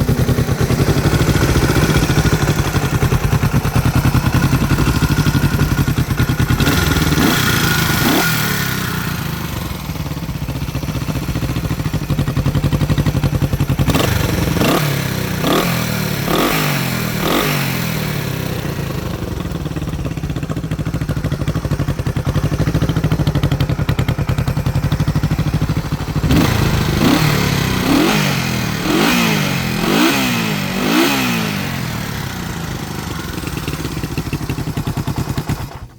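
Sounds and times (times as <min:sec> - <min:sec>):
motorcycle engine idling: 0:00.0 - 0:35.9
engine revving in blips: 0:13.9 - 0:18.0, 0:26.2 - 0:31.9.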